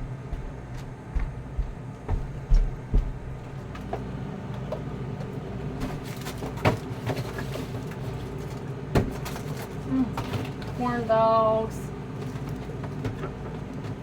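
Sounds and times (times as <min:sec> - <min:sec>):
steady low hum: 0:00.0 - 0:14.0
boxes knocking and scraping: 0:05.7 - 0:11.1.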